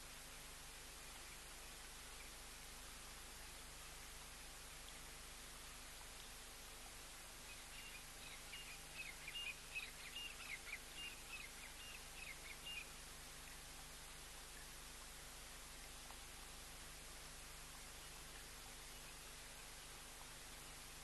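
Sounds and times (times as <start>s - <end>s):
background hiss: 0.0s - 21.0s.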